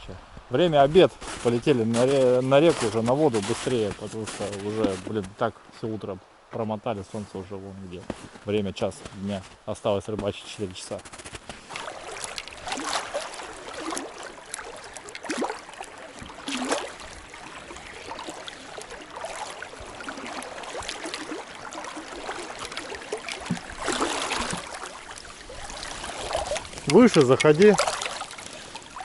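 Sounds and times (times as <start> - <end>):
flowing river water: 0.0 - 29.0
water splashing and knocks: 1.2 - 5.4, 9.0 - 29.0.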